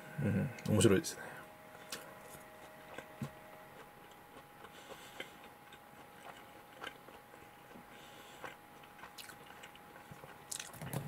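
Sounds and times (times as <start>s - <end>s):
faint chewing mouth clicks: 3.8s - 11.0s.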